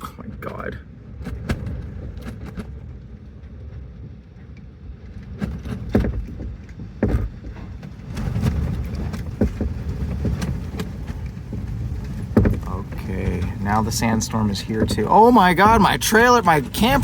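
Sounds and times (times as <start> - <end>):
wind gusts buffeting: 0.0 - 17.0
objects knocking and rattling: 5.3 - 14.1.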